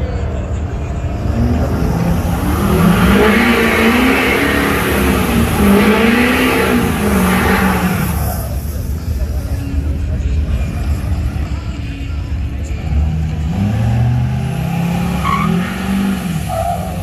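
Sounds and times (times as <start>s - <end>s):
loud rushing noise: 0.7s - 11.4s
vehicle engine revving under load: 1.0s - 8.8s, 12.8s - 17.0s.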